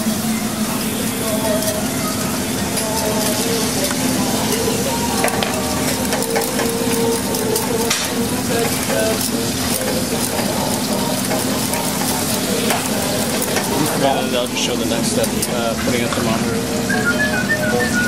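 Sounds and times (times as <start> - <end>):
mixture bubbling in pot: 0.0 - 17.8
whisk clicking against pot: 2.6 - 16.3.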